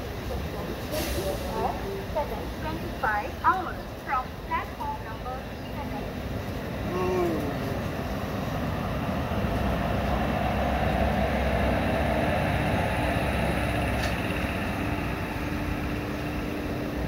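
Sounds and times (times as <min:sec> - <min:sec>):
train wheel and rail noise: 0:00.0 - 0:17.0
wind: 0:00.0 - 0:17.0.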